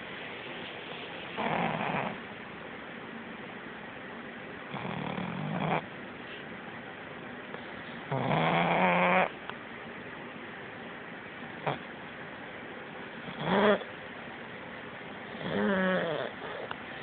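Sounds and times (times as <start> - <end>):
dog snoring: 1.4 - 2.2, 4.7 - 5.9, 7.9 - 9.4, 11.6 - 11.9, 13.2 - 13.9, 15.2 - 16.7.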